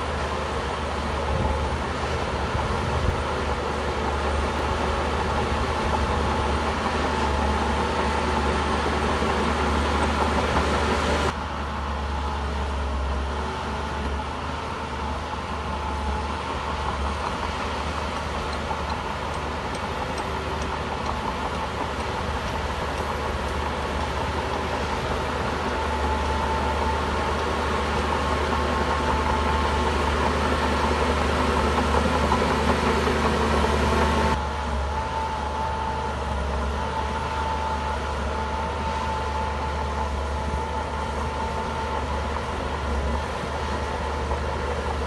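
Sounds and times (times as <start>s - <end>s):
bulldozer diesel engine running: 0.0s - 45.0s.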